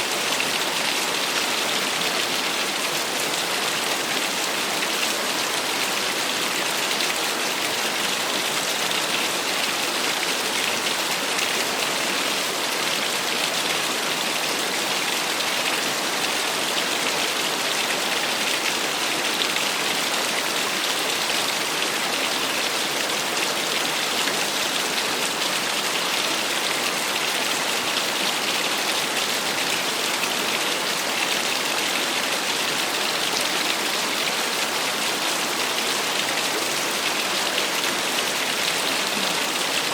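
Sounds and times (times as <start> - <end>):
waterfall splashing: 20.9 - 39.9.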